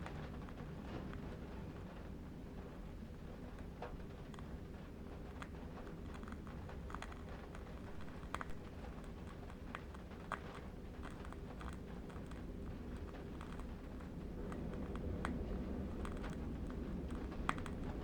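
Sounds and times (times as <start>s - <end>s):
low wind rumble: 5.9s - 18.0s.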